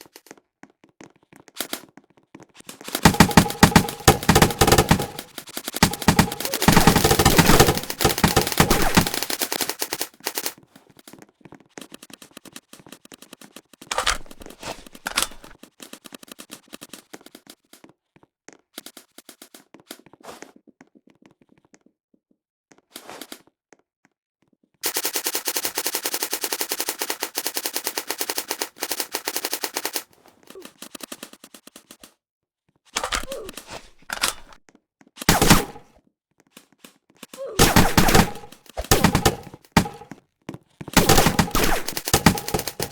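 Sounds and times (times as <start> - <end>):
automatic gunfire bursts: 2.8 - 10.6, 24.8 - 30.1, 35.3 - 35.9, 37.6 - 40.1, 40.9 - 42.9.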